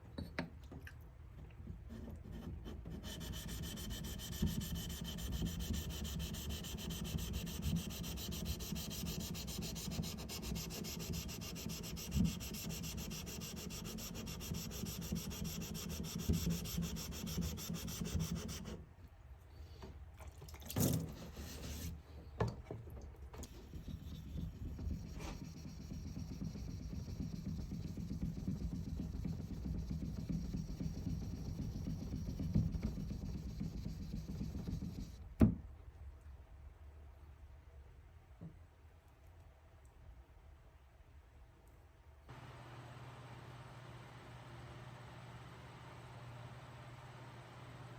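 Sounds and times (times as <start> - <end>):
wood being sanded: 2.0 - 18.8, 23.6 - 35.2.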